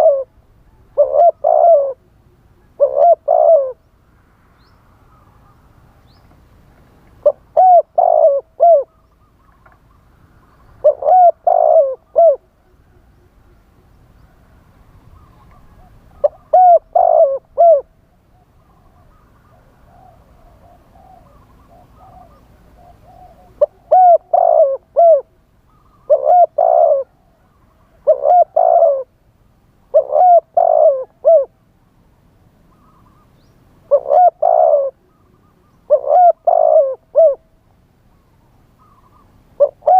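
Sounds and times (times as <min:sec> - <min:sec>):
dove cooing: 0:00.0 - 0:03.9, 0:07.2 - 0:10.0, 0:10.6 - 0:13.5, 0:14.2 - 0:29.2, 0:29.9 - 0:31.6, 0:33.8 - 0:37.6, 0:38.4 - 0:39.9
faint dove cooing: 0:00.0 - 0:04.3, 0:07.2 - 0:29.2, 0:29.9 - 0:31.6, 0:32.7 - 0:39.9.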